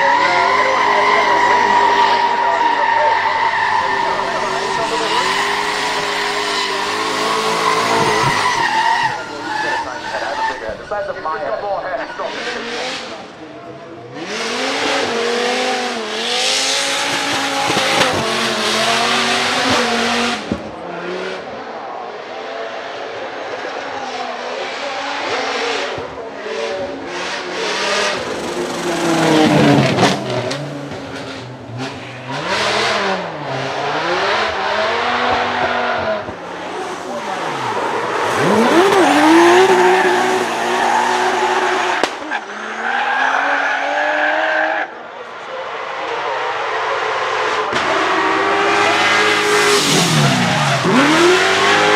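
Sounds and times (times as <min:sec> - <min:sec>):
tyres squealing: 0:00.0 - 0:12.6, 0:37.2 - 0:43.9
spinning tyres noise: 0:00.0 - 0:13.2, 0:25.3 - 0:51.9
car engine revving hard: 0:00.0 - 0:13.3, 0:14.1 - 0:21.6, 0:24.7 - 0:44.7, 0:46.8 - 0:51.9.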